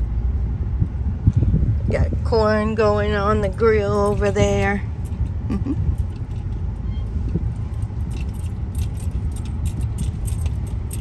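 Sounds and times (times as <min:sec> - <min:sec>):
road and engine rumble: 0:00.0 - 0:11.0
light rattling clicks: 0:03.4 - 0:11.0.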